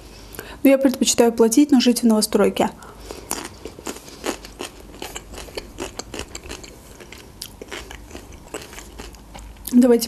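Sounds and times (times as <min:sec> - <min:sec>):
cucumber chewing crunches: 0:03.0 - 0:09.8.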